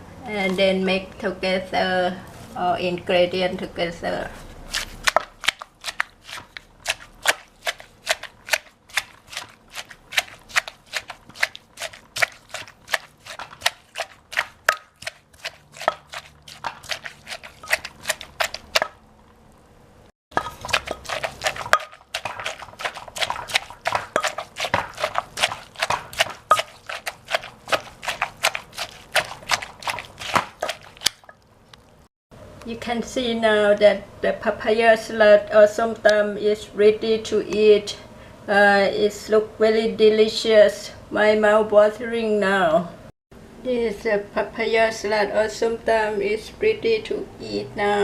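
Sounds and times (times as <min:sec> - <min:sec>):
pestle pounding in a mortar: 0:04.7 - 0:19.0, 0:20.3 - 0:31.4.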